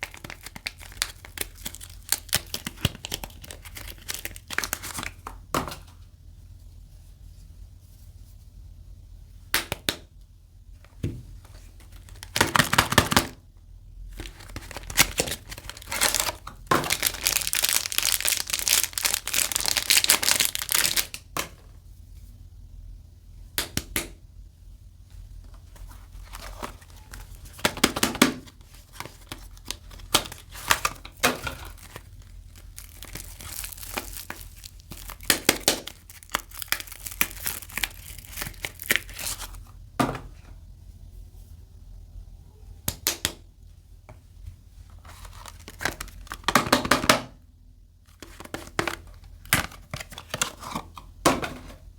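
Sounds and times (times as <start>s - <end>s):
wrapping crinkling and tearing: 0.0s - 5.3s, 11.4s - 13.4s, 14.1s - 21.3s, 25.5s - 39.6s, 44.9s - 46.6s.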